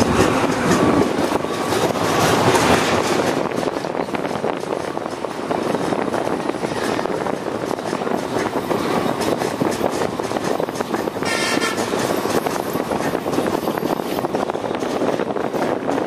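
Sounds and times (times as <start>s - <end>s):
clatter of train wheels on rail: 0.0s - 16.0s
train horn toot: 11.2s - 12.0s.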